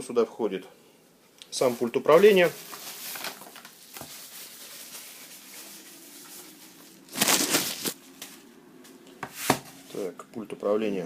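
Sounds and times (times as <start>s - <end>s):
packaging rustling and crinkling: 1.6s - 8.5s.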